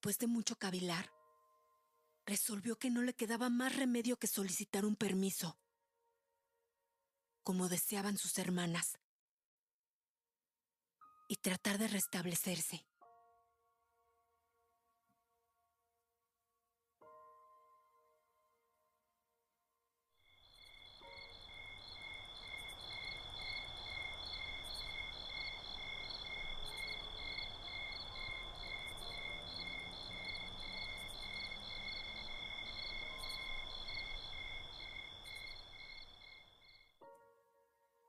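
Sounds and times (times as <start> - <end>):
insects trilling and chirping: 20.2 - 36.9.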